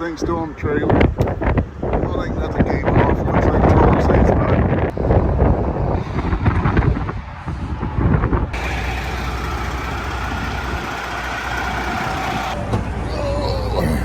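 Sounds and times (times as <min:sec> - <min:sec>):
wind buffeting microphone: 0:00.0 - 0:14.0
diesel truck engine idling: 0:08.6 - 0:14.0.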